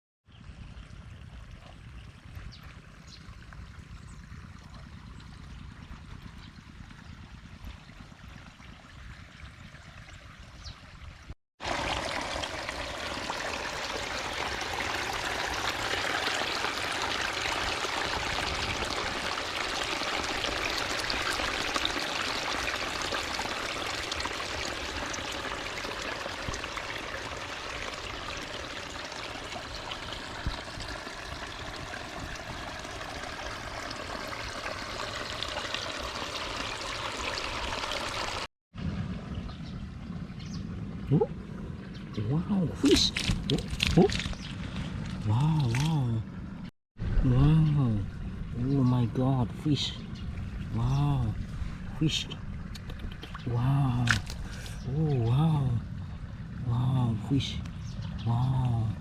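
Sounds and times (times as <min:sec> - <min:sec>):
water rushing: 0:11.6 - 0:38.5.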